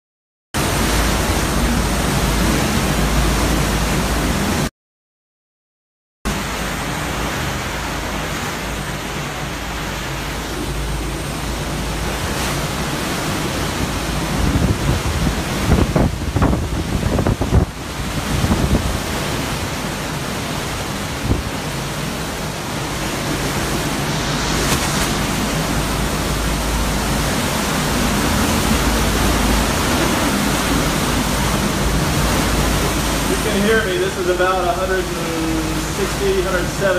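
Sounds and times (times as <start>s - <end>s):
hurricane wind rushing: 0.6s - 4.7s, 6.3s - 36.9s
wind gusts buffeting microphone: 10.2s - 36.2s.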